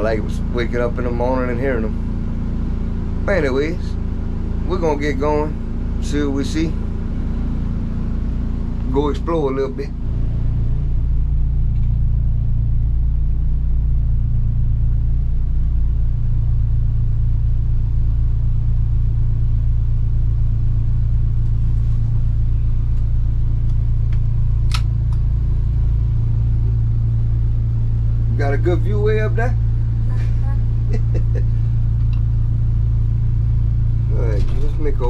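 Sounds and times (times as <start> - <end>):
boat motor droning: 0.0 - 35.0
sharp click: 23.7 - 25.2.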